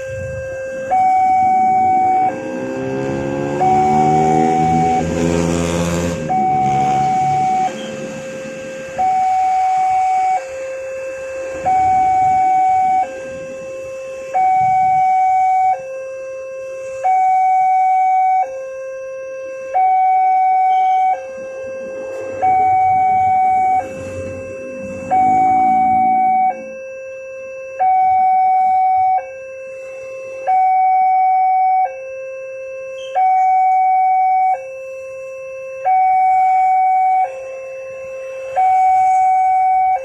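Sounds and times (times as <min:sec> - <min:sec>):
level crossing two-tone alarm: 0:00.0 - 0:40.0.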